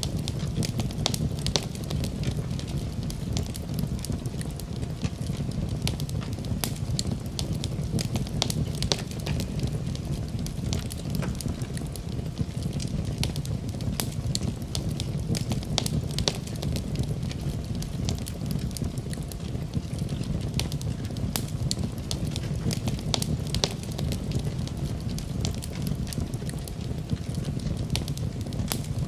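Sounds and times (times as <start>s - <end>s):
low rumble of flame: 0.0s - 29.0s
wood crackling and popping: 0.0s - 29.0s.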